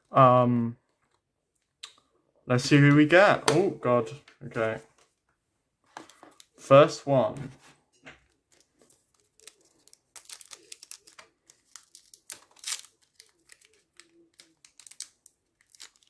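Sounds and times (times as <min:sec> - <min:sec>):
foil wrapper crinkling and tearing: 0:08.5 - 0:16.0.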